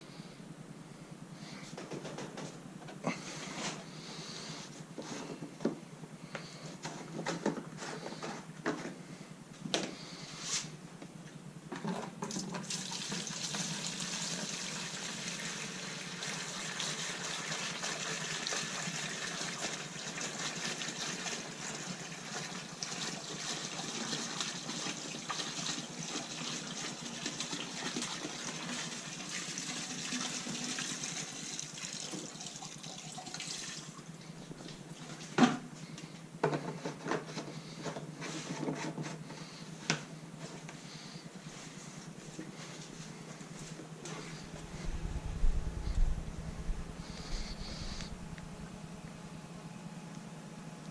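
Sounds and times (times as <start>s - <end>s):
liquid running: 12.3s - 35.3s.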